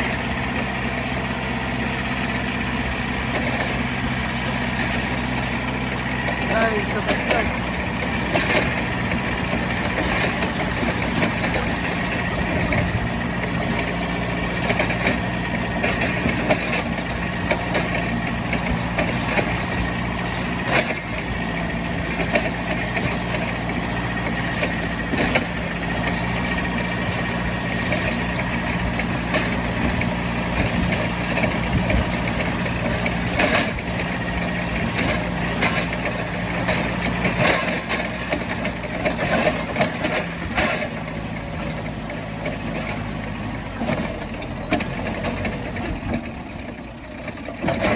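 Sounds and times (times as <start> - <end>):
truck engine idling: 0.0 - 35.1.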